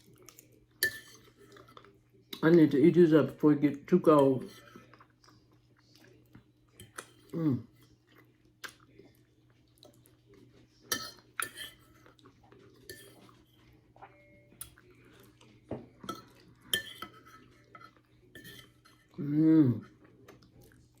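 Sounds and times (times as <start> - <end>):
cutlery scraping a plate: 0.8 - 1.9, 4.4 - 4.9, 10.9 - 12.1, 12.8 - 13.6, 15.9 - 19.2.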